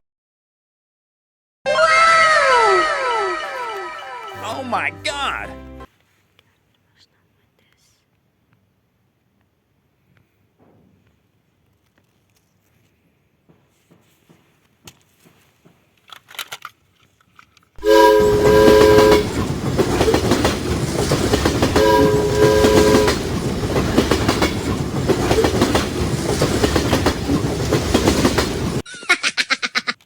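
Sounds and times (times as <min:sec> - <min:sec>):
train clickety-clack on rails: 0:13.5 - 0:15.9, 0:17.8 - 0:28.8
train horn toots: 0:17.8 - 0:19.5, 0:21.6 - 0:23.4.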